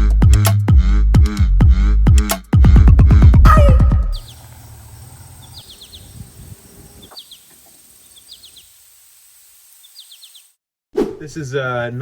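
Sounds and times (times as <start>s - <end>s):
songbird chirping: 3.5s - 10.6s.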